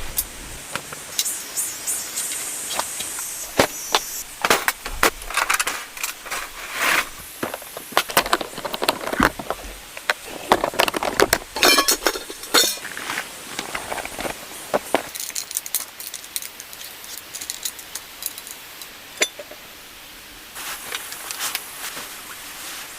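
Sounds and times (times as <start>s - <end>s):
rustling: 2.1s - 18.7s, 20.6s - 22.9s
objects knocking and clicking: 7.4s - 18.6s.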